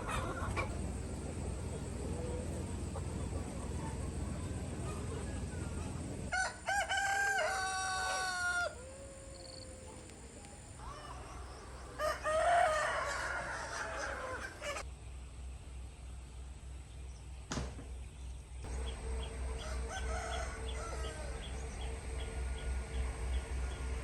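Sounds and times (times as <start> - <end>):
harsh chicken call: 4.8 - 10.0, 10.8 - 14.8
rooster crowing: 4.8 - 10.1, 10.8 - 14.8, 19.4 - 22.3.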